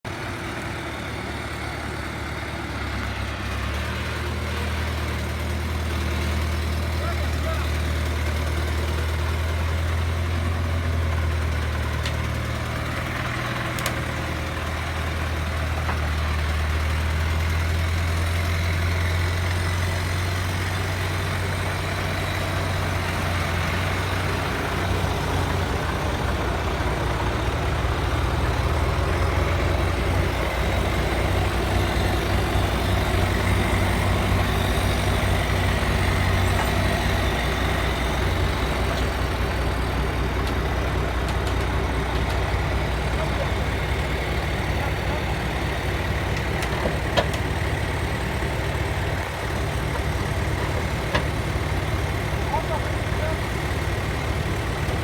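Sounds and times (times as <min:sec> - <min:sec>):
truck engine droning: 0:00.0 - 0:55.0.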